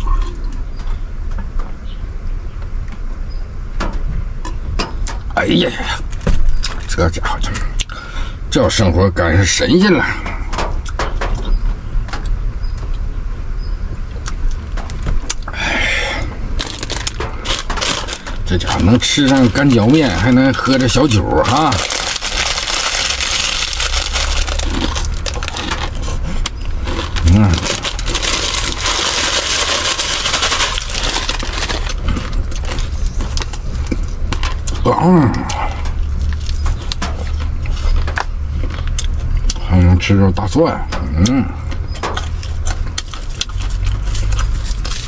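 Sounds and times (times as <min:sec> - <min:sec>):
low hum: 0:00.0 - 0:45.0
low rumble inside car: 0:00.0 - 0:45.0
packet rustling: 0:16.6 - 0:34.6
dry noodles crunched and chewed: 0:16.6 - 0:34.8, 0:42.2 - 0:45.0.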